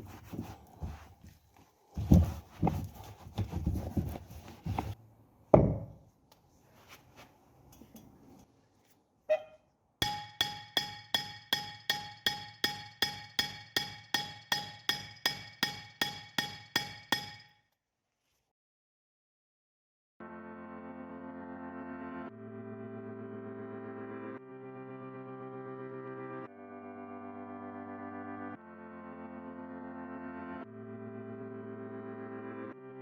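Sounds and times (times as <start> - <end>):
hammer striking anvil: 10.0 - 17.5.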